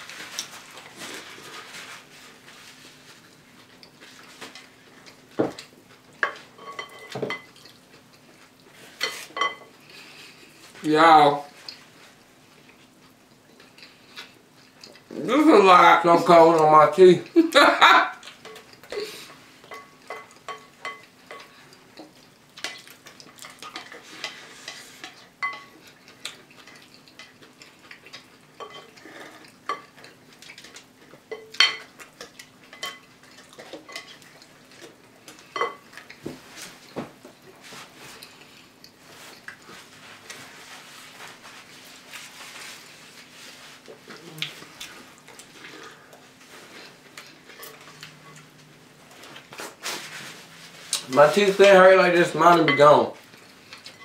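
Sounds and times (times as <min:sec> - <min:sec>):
spoons clinking against bowls: 0:06.2 - 0:07.7, 0:09.0 - 0:09.7, 0:19.6 - 0:21.5, 0:22.6 - 0:25.8, 0:28.6 - 0:29.0, 0:52.6 - 0:53.2.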